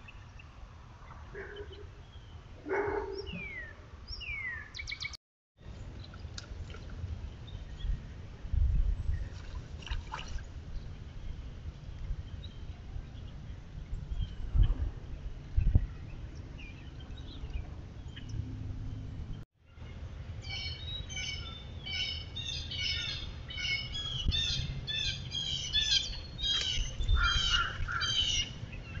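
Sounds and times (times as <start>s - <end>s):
birds chirping: 0.0s - 5.2s, 10.7s - 29.0s
lower bird calls: 20.5s - 29.0s.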